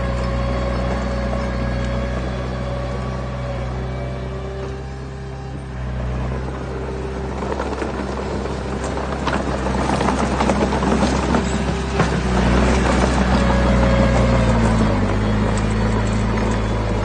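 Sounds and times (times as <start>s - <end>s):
diesel engine running: 0.0s - 17.0s
stones knocking and tumbling: 7.2s - 17.0s.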